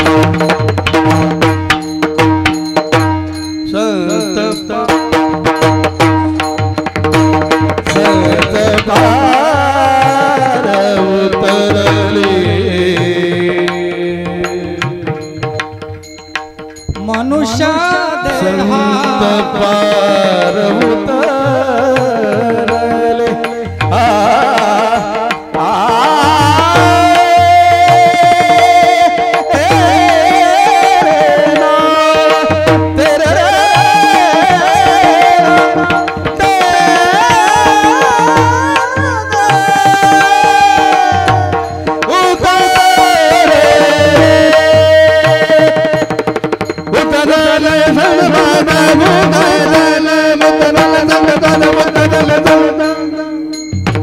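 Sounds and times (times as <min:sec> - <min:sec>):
person singing devotional song: 0:00.0 - 0:16.0, 0:16.6 - 0:53.7
tabla strokes: 0:00.0 - 0:54.0.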